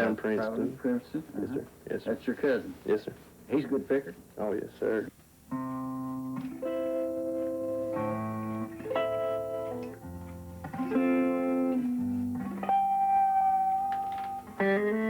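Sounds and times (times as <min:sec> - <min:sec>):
solo fingerpicked guitar: 0:05.5 - 0:15.0.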